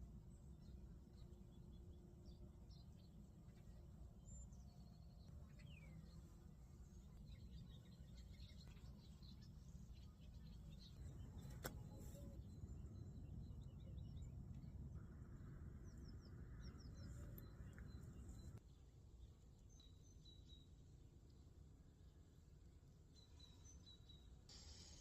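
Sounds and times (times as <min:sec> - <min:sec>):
distant birds chirping: 0:00.3 - 0:18.6.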